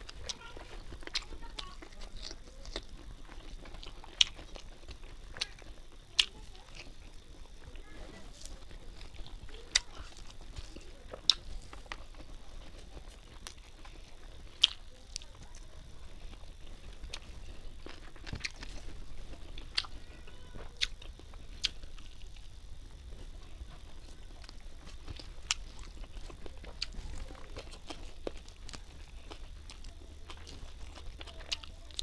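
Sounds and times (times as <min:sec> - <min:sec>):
chewing food: 0:00.0 - 0:32.0
sharp wet clicks: 0:00.1 - 0:07.3, 0:08.6 - 0:16.4.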